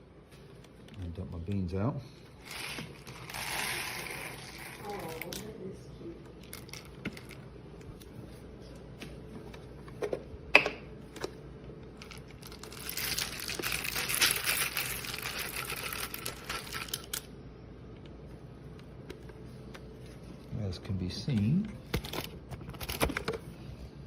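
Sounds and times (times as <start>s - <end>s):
coffee beans pouring and rattling: 2.4s - 5.3s, 12.0s - 17.2s.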